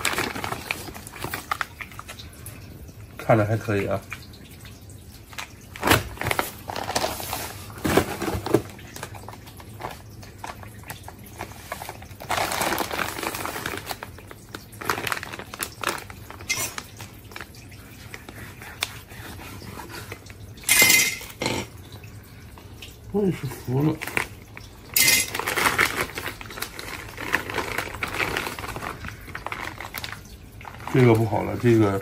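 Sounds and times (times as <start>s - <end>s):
plastic packaging crinkling: 0.0s - 2.4s, 5.3s - 19.0s, 23.5s - 32.0s.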